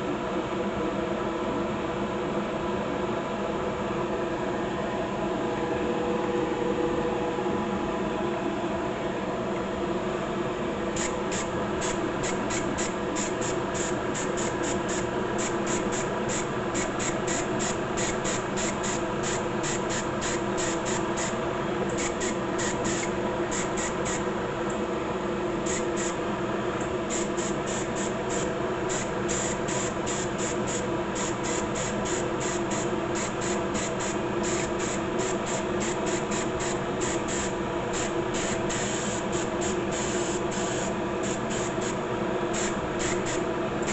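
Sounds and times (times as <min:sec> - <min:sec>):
steady hum and hiss: 0:00.0 - 0:43.9
spray can hissing bursts: 0:11.0 - 0:21.4, 0:22.0 - 0:24.2, 0:25.7 - 0:26.2, 0:27.1 - 0:42.0, 0:42.6 - 0:43.9.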